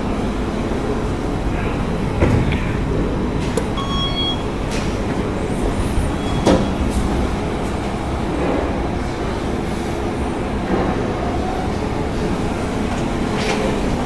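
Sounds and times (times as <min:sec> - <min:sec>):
elevator car rumbling: 0:00.0 - 0:14.0
short electronic beep: 0:03.8 - 0:04.5.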